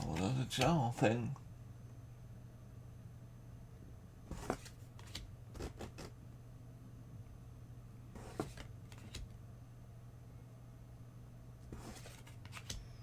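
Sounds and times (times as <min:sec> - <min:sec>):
steady low hum: 0:00.0 - 0:13.0
trading cards rustling: 0:11.7 - 0:13.0.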